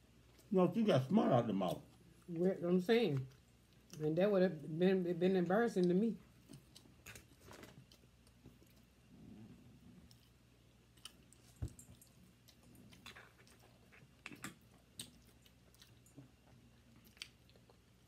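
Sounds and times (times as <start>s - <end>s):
chewing and mouth sounds: 6.2s - 18.0s.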